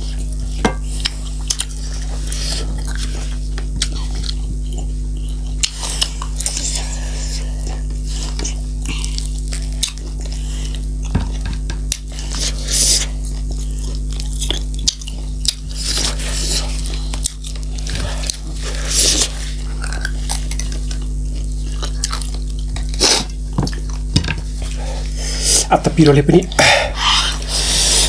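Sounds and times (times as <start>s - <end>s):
chewing and biting food: 0.0s - 28.0s.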